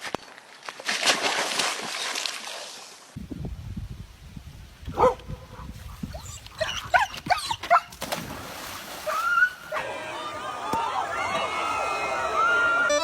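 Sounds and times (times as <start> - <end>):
animal yelps and whines: 6.1 - 7.9.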